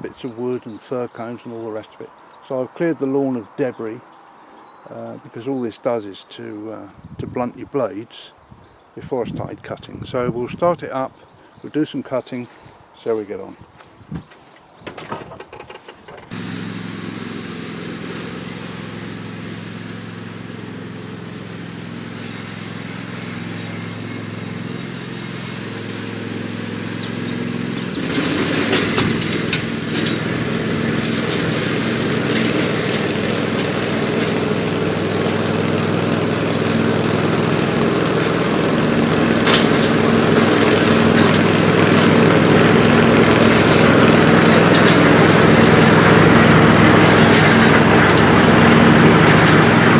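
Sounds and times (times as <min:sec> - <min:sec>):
ride-on mower engine: 0:15.4 - 0:49.9
mower cutting grass: 0:15.5 - 0:49.9.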